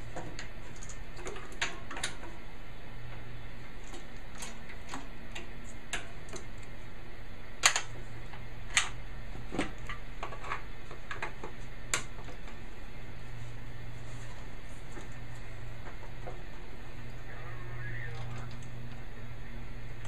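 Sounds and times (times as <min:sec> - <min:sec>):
clicks and taps of metal parts: 0:07.6 - 0:09.0.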